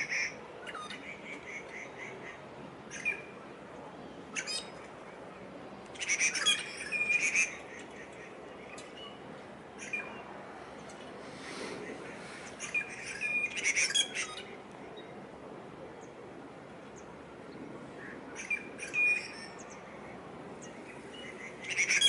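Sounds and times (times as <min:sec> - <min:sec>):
low background noise: 0:00.0 - 0:22.0.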